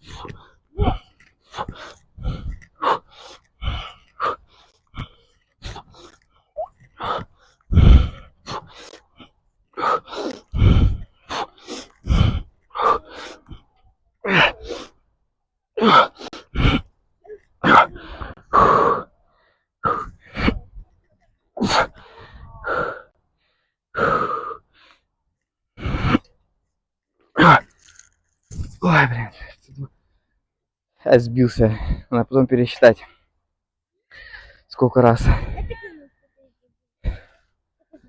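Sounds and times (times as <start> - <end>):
person breathing forcefully and gasping: 0.0 - 15.0, 15.8 - 17.0, 17.6 - 21.0, 21.6 - 25.0, 25.8 - 26.3, 31.6 - 32.2, 34.1 - 35.8, 37.0 - 37.6.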